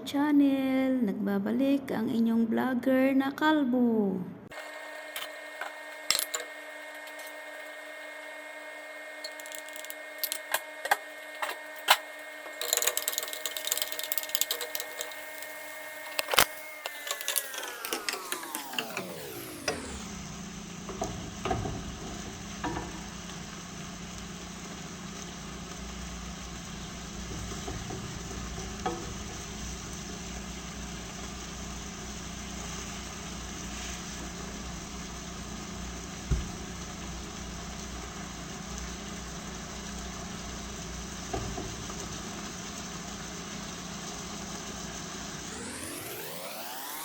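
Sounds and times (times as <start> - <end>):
steady low hum and hiss: 18.7 - 45.5.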